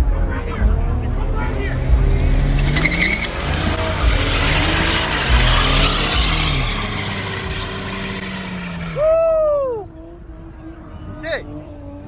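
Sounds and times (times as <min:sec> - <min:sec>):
car engine revving: 0:00.1 - 0:09.3
tyres squealing: 0:01.5 - 0:09.1.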